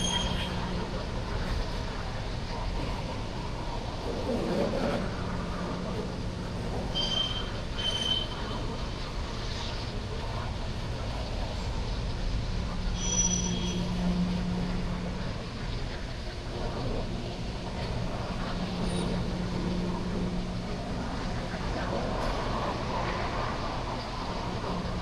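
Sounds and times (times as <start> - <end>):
faint high squeal: 0.0 - 0.9, 6.9 - 8.7, 12.9 - 14.5
freight train rumbling by: 0.0 - 25.0
low hum: 0.0 - 25.0.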